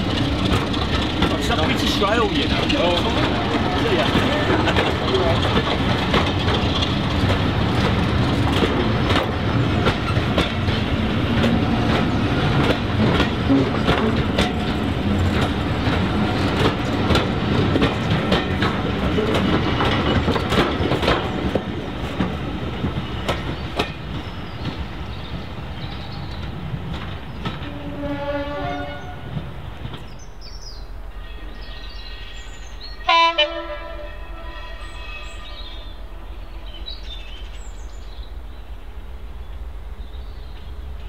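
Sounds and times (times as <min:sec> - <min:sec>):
wheels clicking over rail joints: 0:00.0 - 0:28.4
train running past: 0:00.0 - 0:41.0.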